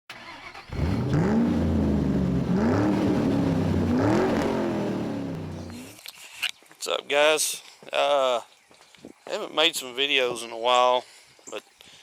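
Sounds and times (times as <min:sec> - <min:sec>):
engine revving: 0:00.1 - 0:06.0.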